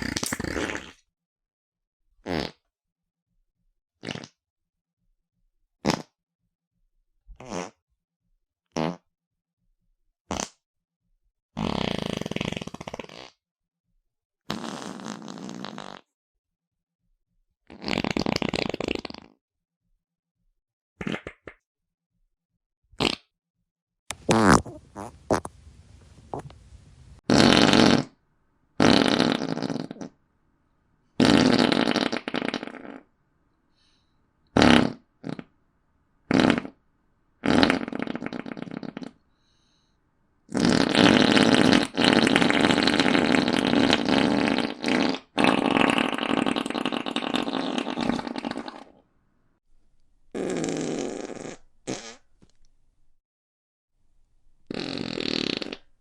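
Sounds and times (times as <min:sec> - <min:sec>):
fart sounds: 0:00.0 - 0:01.1, 0:02.2 - 0:02.7, 0:04.0 - 0:04.4, 0:05.8 - 0:06.2, 0:07.4 - 0:07.8, 0:08.7 - 0:09.1, 0:10.3 - 0:10.6, 0:11.6 - 0:13.4, 0:14.5 - 0:16.1, 0:17.7 - 0:19.4, 0:21.0 - 0:21.6, 0:23.0 - 0:23.3, 0:24.1 - 0:28.2, 0:28.8 - 0:30.2, 0:31.2 - 0:33.1, 0:34.5 - 0:35.5, 0:36.3 - 0:36.8, 0:37.4 - 0:39.2, 0:40.5 - 0:49.0, 0:50.3 - 0:52.3, 0:54.7 - 0:55.9.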